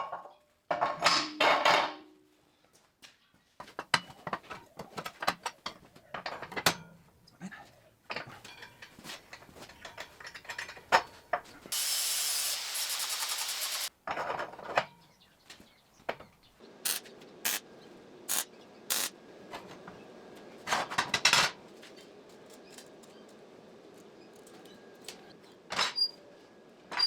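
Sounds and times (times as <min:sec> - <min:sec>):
mechanical ratcheting rasp: 0:16.9 - 0:17.6, 0:18.3 - 0:19.1.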